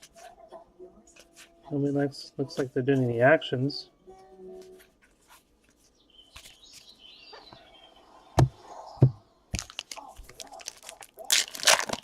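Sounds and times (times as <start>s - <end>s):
cards rustling: 9.6s - 12.0s.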